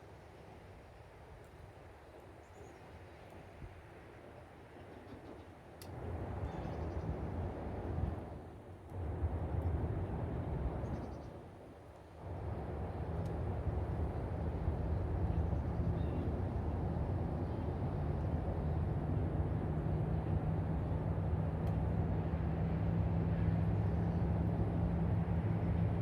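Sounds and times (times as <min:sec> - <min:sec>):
engine drone with low hum: 0:05.9 - 0:26.0.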